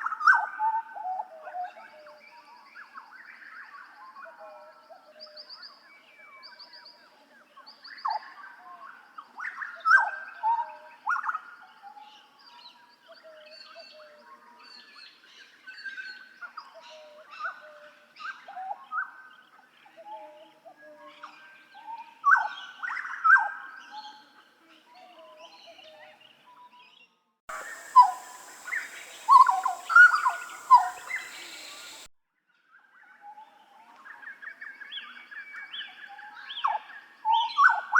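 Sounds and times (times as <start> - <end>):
bird singing whistled notes: 27.5 - 32.1.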